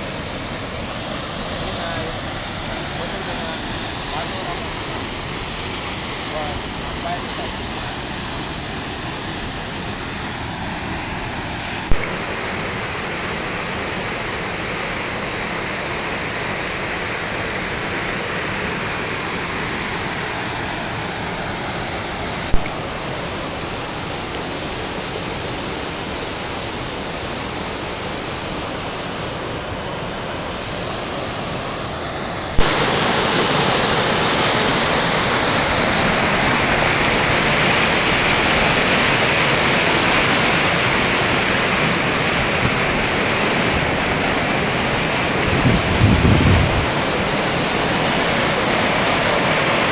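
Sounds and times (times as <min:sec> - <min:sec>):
waterfall roaring: 0:00.0 - 0:49.9.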